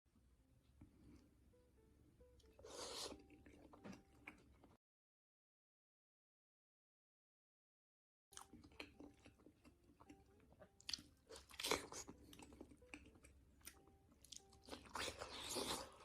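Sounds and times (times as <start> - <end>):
chewing crunchy food: 2.5 - 4.8, 8.4 - 16.0.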